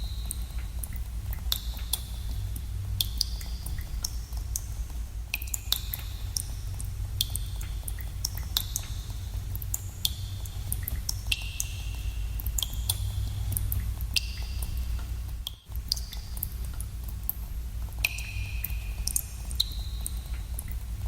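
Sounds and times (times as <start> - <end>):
water drops plinking into pools: 0.0 - 20.9
steady low rumble: 0.0 - 21.0.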